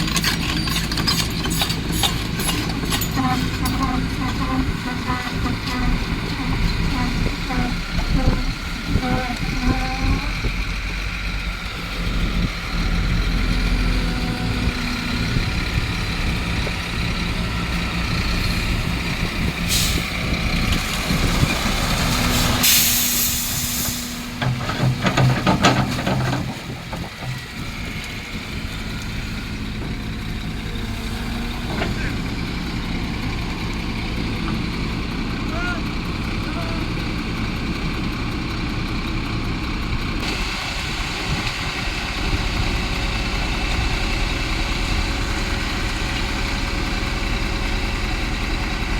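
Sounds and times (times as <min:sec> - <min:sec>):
diesel engine running: 0:00.0 - 0:48.9
air hiss: 0:22.4 - 0:24.3.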